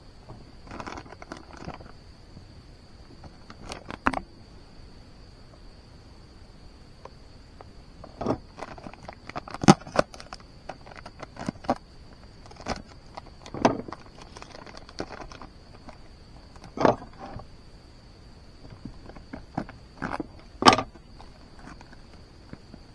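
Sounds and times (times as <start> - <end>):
small hard objects clinking: 12.4 - 17.2.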